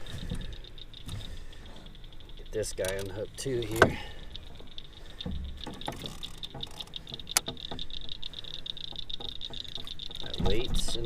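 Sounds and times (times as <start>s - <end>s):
gear clicking and rattling: 0.0s - 11.0s
sharp click: 2.4s - 4.0s
dull thump: 9.2s - 11.0s.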